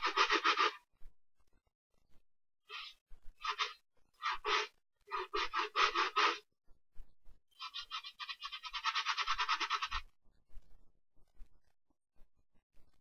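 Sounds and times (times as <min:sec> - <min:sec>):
brush scrubbing a sneaker: 0:00.0 - 0:00.8, 0:02.7 - 0:06.4.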